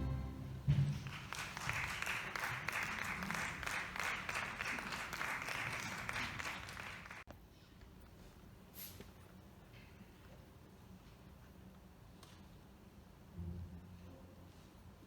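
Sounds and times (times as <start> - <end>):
applause: 0.7 - 7.3.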